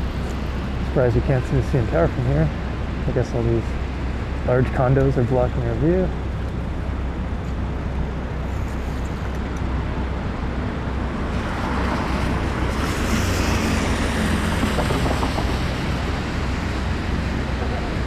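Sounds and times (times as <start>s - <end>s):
traffic noise: 0.0s - 18.0s
wind rumbling on microphone: 11.0s - 18.0s.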